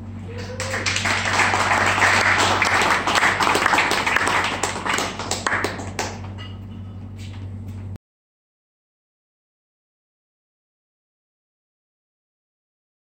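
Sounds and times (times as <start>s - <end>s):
crowd clapping: 0.3s - 6.3s.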